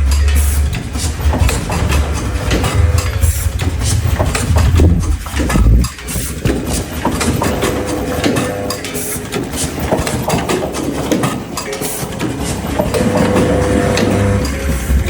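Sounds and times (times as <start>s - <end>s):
faint steady whine: 0.0s - 6.5s
motor hum: 0.0s - 8.8s
rapid clatter of clicks: 0.0s - 15.0s.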